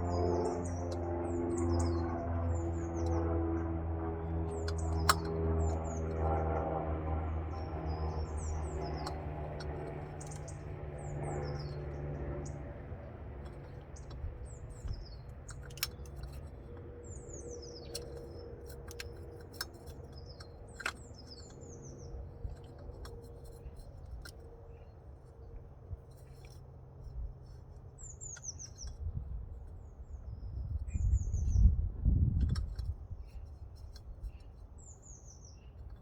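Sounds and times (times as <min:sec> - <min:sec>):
low steady hum: 0:00.0 - 0:36.0
small birds chirping: 0:00.0 - 0:36.0
sharp clicks: 0:04.5 - 0:06.0.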